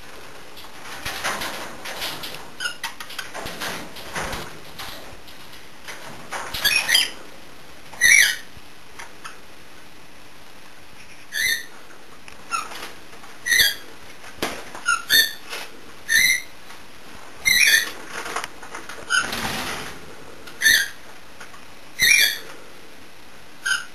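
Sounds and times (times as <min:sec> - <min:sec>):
parrots whistled chirps: 0:11.3 - 0:11.7, 0:16.1 - 0:16.5.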